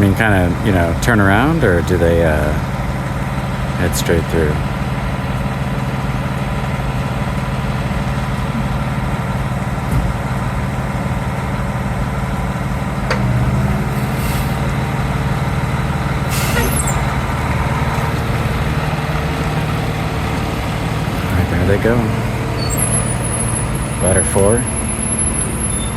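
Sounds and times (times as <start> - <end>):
diesel engine rumbling: 0.0 - 25.9
air brake hiss: 13.9 - 14.6, 16.3 - 17.0.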